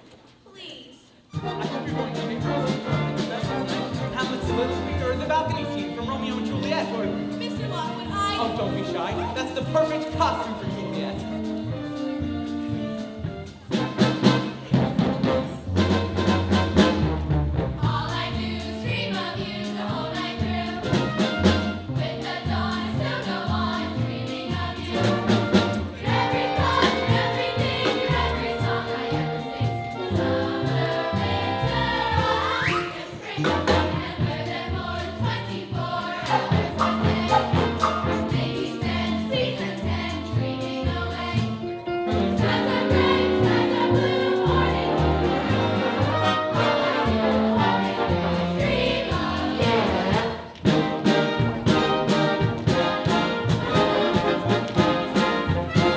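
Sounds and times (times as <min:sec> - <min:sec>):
group singing a show tune: 0:01.4 - 0:11.5, 0:17.8 - 0:55.9
band playing: 0:01.4 - 0:55.9.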